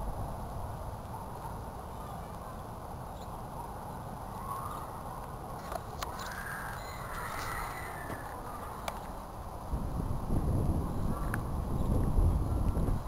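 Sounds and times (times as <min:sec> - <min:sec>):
bird calls: 0:06.0 - 0:09.1.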